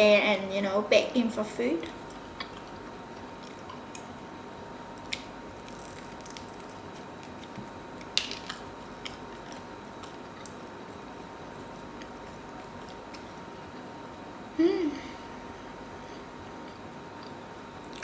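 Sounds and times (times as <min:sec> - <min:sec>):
faint steady hum: 0:00.0 - 0:18.0
person chewing and biting food: 0:05.0 - 0:13.8.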